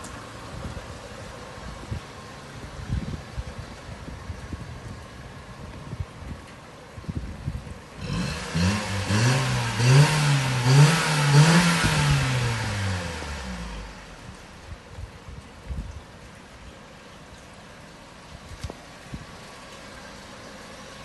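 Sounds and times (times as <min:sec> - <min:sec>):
car engine revving: 0:08.0 - 0:14.5.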